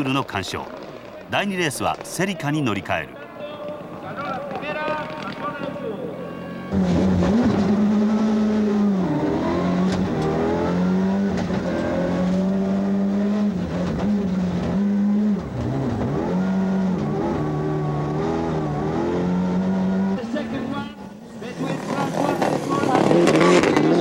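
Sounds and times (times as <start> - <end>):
car engine at high revs: 6.7 - 24.0.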